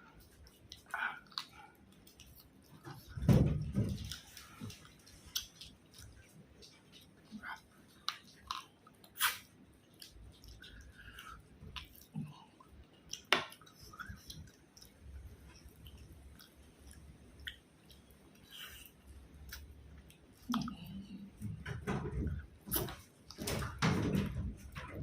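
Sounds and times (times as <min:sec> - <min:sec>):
person chewing food: 0:00.0 - 0:23.4
wet mouth clicks: 0:07.4 - 0:12.5, 0:13.1 - 0:21.2.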